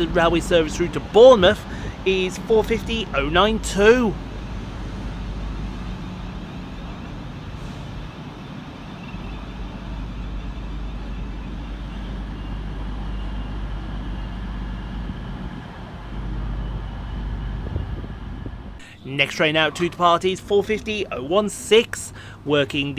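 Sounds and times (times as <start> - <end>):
electric train rumbling: 0.0 - 22.9.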